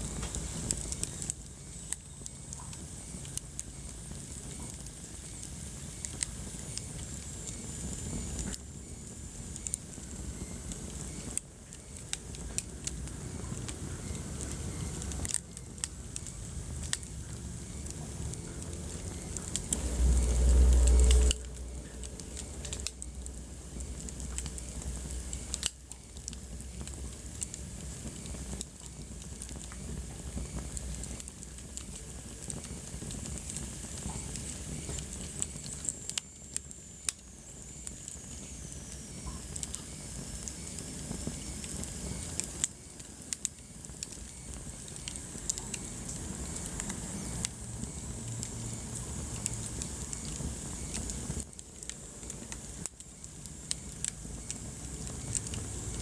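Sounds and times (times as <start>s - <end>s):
low rushing of flame: 0.0s - 56.0s
wood fire crackling: 0.0s - 56.0s
low rumble: 16.7s - 25.6s.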